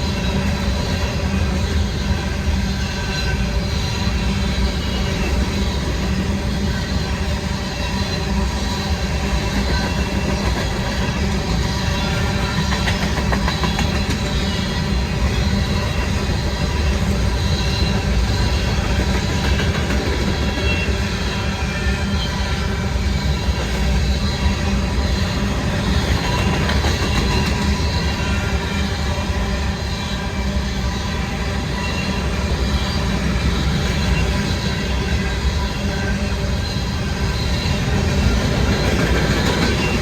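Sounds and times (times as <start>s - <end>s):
freight train wheels rumbling: 0.0s - 40.0s.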